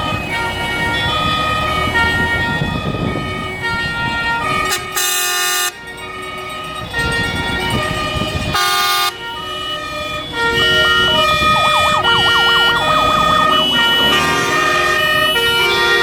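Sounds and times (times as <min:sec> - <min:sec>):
two-tone hi-lo sirens: 0:00.0 - 0:16.0
loud horn blast: 0:04.5 - 0:05.8, 0:08.5 - 0:09.2, 0:09.8 - 0:16.0
fast yelping siren: 0:10.2 - 0:16.0.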